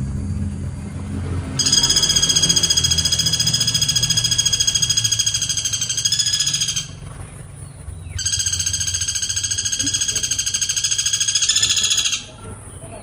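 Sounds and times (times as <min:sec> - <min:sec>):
low hum: 0:00.0 - 0:13.0
woodpecker rapid trills: 0:00.0 - 0:13.0.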